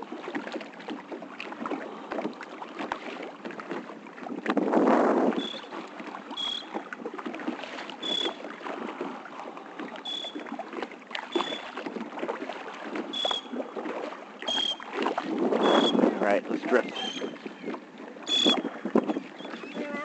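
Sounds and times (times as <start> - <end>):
paddle splashing water: 0.0 - 20.0
short high chirp: 11.4 - 11.6.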